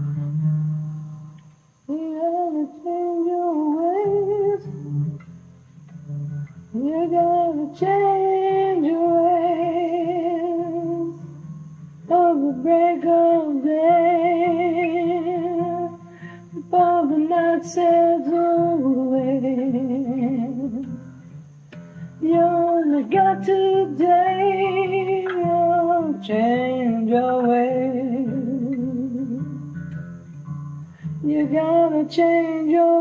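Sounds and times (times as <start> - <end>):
strummed acoustic guitar: 0.0 - 33.0
person singing with vibrato: 1.9 - 5.1, 6.7 - 11.4, 12.0 - 21.0, 22.2 - 29.6, 31.0 - 33.0.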